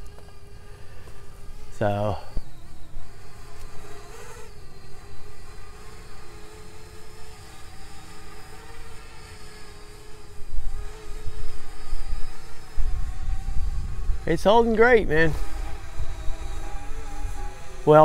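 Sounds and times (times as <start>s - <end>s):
drone propellers buzzing: 0.0s - 18.0s
wind buffeting microphone: 10.4s - 18.0s.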